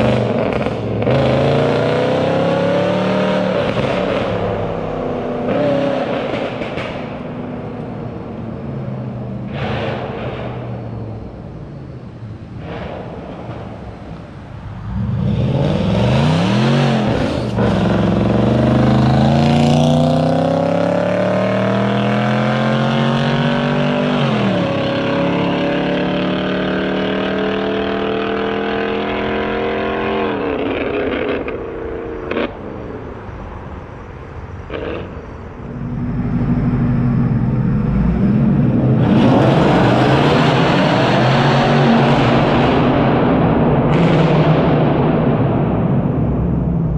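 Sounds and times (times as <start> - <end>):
car engine exhaust revving: 14.9 - 32.6, 34.7 - 46.7.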